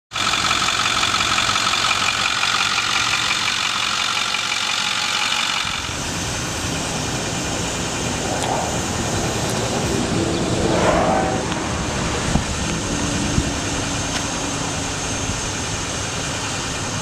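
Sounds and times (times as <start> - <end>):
truck engine running: 0.1 - 17.0
high steady whine: 5.8 - 17.0.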